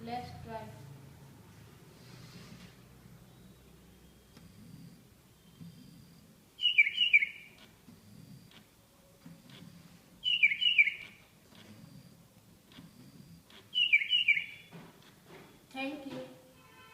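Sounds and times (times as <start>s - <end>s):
parrot-like bird chirps: 6.6s - 7.6s, 10.2s - 11.2s, 13.7s - 14.7s.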